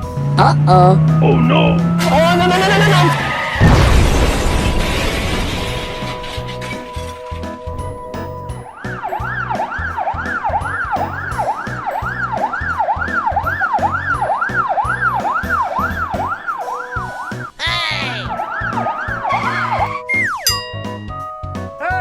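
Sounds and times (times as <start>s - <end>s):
police siren wailing: 0.7s - 20.4s
background music with a beat: 6.8s - 22.0s.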